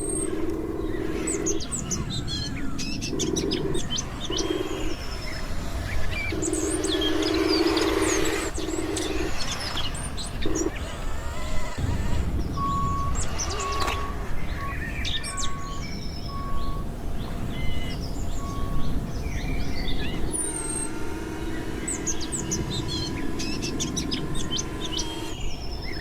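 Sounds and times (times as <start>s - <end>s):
low electric motor hum: 0.0s - 26.0s
small birds chirping: 0.0s - 26.0s.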